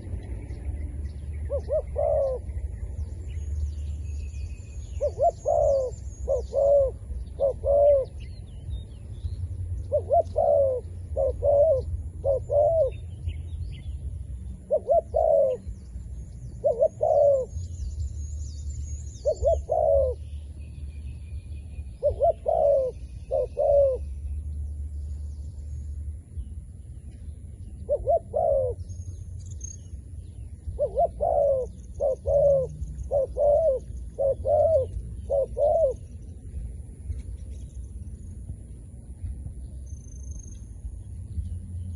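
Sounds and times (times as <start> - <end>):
low rumble: 0.0 - 41.9
dove cooing: 1.5 - 2.7, 5.0 - 8.3, 9.8 - 13.0, 14.6 - 15.7, 16.6 - 17.7, 19.2 - 20.3, 22.0 - 24.2, 27.8 - 28.9, 30.7 - 36.2.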